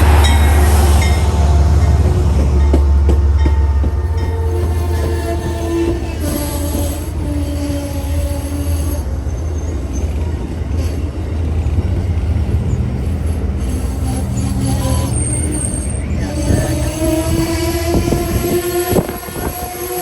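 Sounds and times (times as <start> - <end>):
train rumbling past: 0.0 - 20.0
wheel squeal: 13.6 - 20.0.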